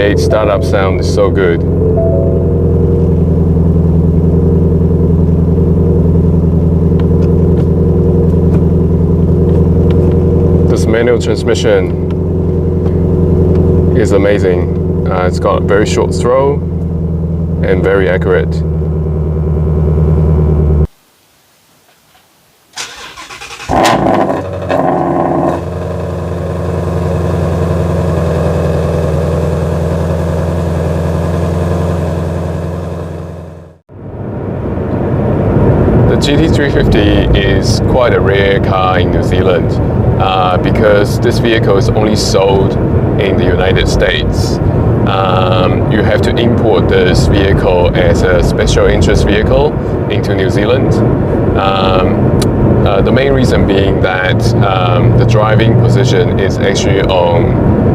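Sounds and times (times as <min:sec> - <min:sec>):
car engine idling: 0:00.0 - 0:20.9, 0:22.8 - 0:57.9
engine revving on startup: 0:22.8 - 0:26.3.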